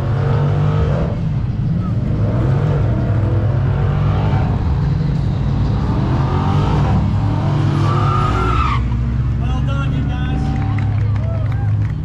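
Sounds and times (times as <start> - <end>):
car engine at high revs: 0.0 - 11.0.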